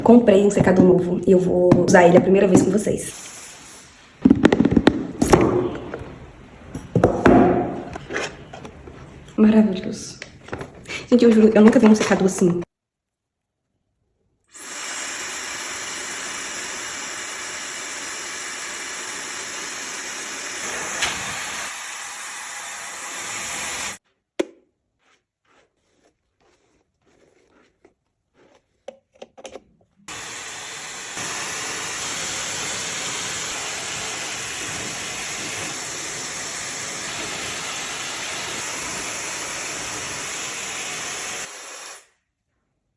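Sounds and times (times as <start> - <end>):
hair dryer blowing: 14.6 - 24.0, 30.1 - 42.1.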